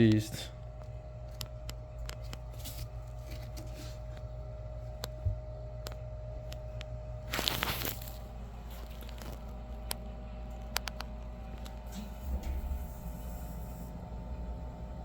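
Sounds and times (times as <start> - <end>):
steady low hum: 0.0 - 15.0
crinkling tearing rustle: 7.3 - 10.0.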